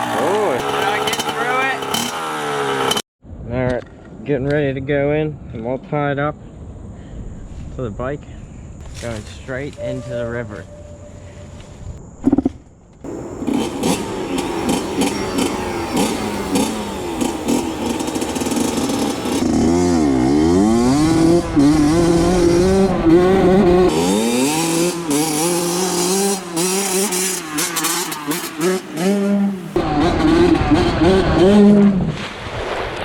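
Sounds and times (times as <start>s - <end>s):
dirt bike engine revving: 0.0s - 3.0s, 13.1s - 32.0s.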